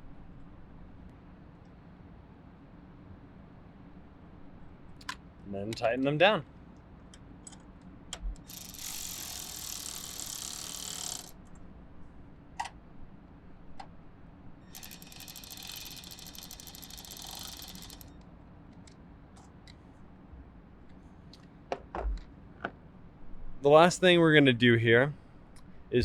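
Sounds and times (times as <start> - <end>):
cordless ratchet spinning nuts: 8.4 - 11.4, 14.6 - 18.1
short metal clicks: 14.7 - 18.2.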